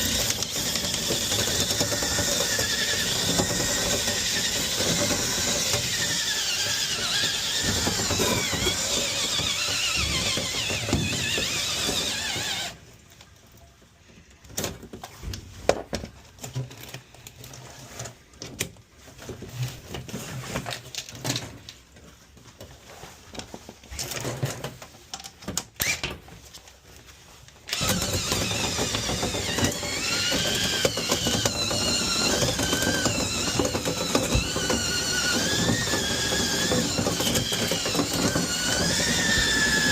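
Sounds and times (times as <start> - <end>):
vent cleaning machine squealing: 0.0 - 12.8, 27.8 - 39.9.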